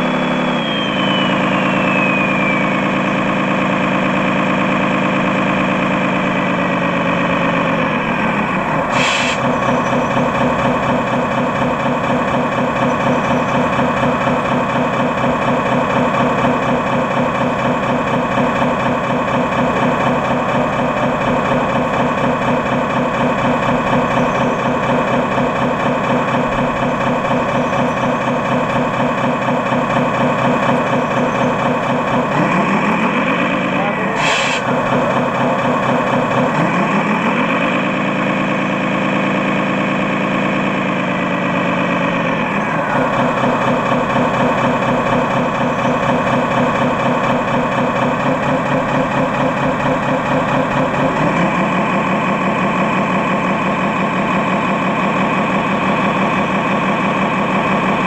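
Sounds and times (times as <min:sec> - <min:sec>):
electronic diesel engine sound: 0:00.0 - 0:58.0
brief hiss: 0:08.9 - 0:09.4, 0:34.2 - 0:34.6.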